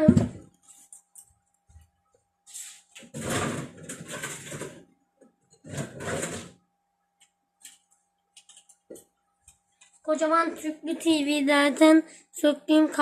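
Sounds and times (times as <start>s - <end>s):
rustling and scraping: 2.4s - 4.9s, 5.5s - 6.6s.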